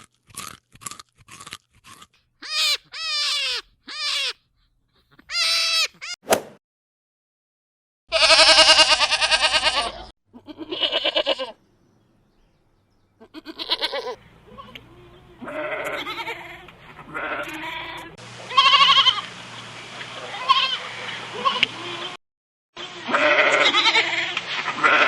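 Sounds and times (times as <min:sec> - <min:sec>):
goats bleating: 0:08.1 - 0:11.6, 0:13.2 - 0:19.3, 0:20.2 - 0:22.2, 0:22.8 - 0:25.0.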